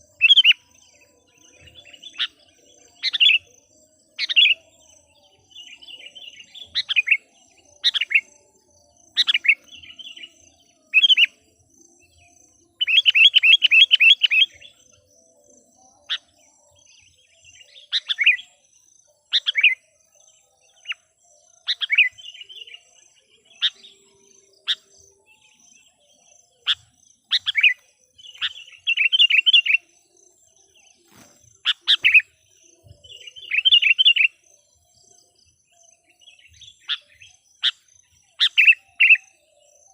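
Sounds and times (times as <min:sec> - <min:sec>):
bulbul calling: 0:26.6 - 0:29.8, 0:31.1 - 0:34.4, 0:36.4 - 0:39.3.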